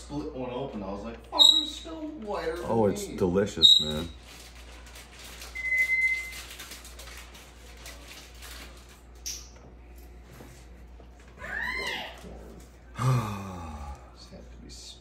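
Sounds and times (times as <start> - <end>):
bird whistling: 1.4 - 1.8.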